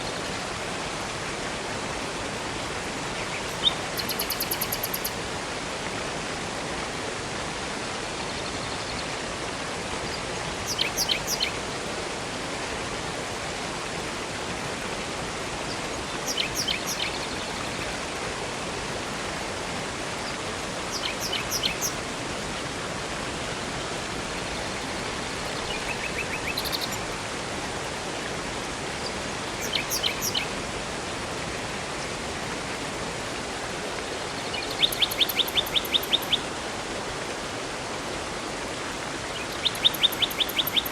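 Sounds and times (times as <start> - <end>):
flowing water: 0.0 - 40.9
small bird chirping: 3.5 - 5.2, 10.7 - 11.5, 16.3 - 17.2, 20.9 - 22.0, 25.7 - 27.0, 29.6 - 30.4, 34.6 - 36.4, 39.6 - 40.9.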